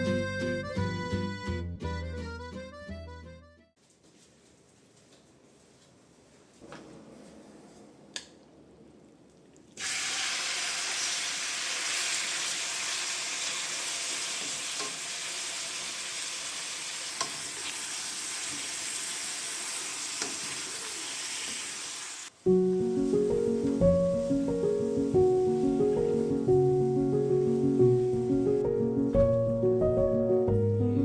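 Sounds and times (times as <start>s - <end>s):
food sizzling in frying pan: 9.8s - 28.6s.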